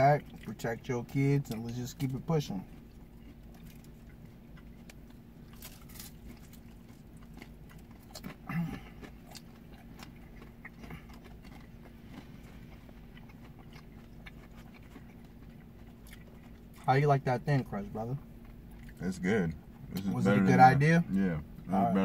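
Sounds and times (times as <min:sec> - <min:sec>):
chewing and biting pizza: 0:00.0 - 0:20.6
low steady hum: 0:00.0 - 0:22.0.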